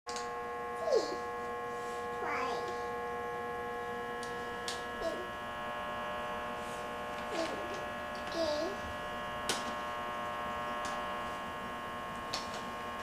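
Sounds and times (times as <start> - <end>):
electrical hum with buzzing: 0.1 - 13.0
small child's wordless vocal sounds: 0.8 - 1.2, 7.3 - 7.7, 8.3 - 8.8.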